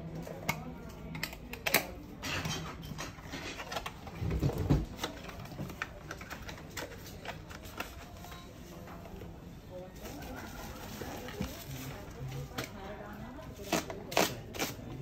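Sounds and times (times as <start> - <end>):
packaging clicks and rustles: 3.5 - 8.5.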